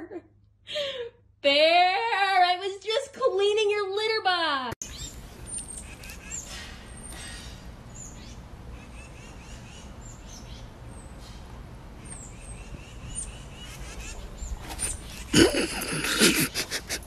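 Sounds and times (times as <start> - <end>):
small birds chirping: 4.8 - 16.3.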